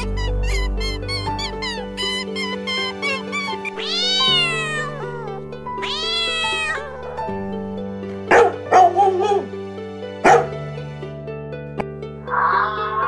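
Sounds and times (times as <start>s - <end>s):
cat meowing: 0.0s - 7.2s, 12.3s - 13.0s
background music with sustained notes: 0.0s - 13.0s
harsh animal calls: 12.2s - 13.0s.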